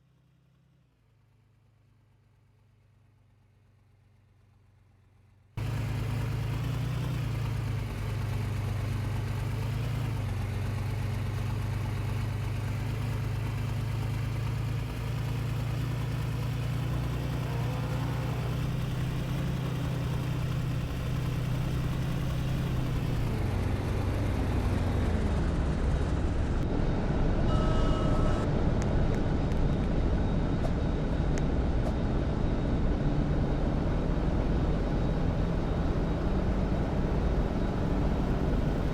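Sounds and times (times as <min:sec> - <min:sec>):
vehicle engine and road noise: 0:00.0 - 0:38.9
short high tone: 0:27.5 - 0:28.5.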